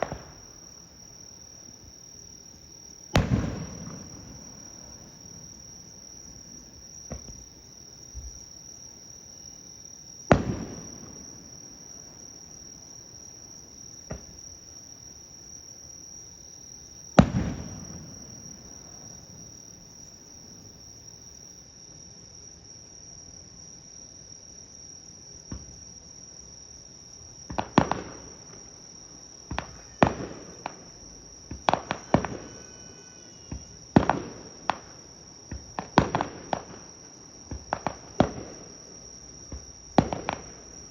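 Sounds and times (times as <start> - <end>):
high insect trill: 0.0 - 21.6, 30.9 - 35.3
firework shells bursting: 2.8 - 8.6, 10.2 - 12.9, 17.1 - 19.9.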